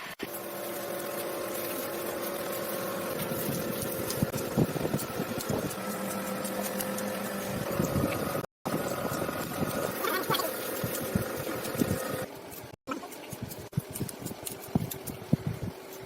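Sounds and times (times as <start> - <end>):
power tool motor running: 0.1 - 12.7.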